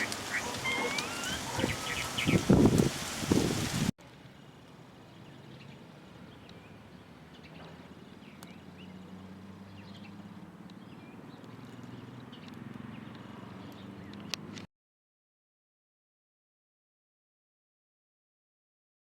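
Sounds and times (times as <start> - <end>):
faint bird chirps: 0.0 - 2.5.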